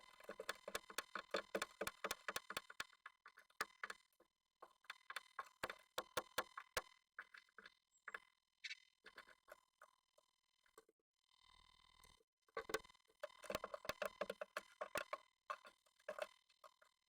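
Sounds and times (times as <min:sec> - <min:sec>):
bird claws tapping on wood: 0:00.0 - 0:04.0, 0:04.6 - 0:08.2, 0:12.6 - 0:16.8.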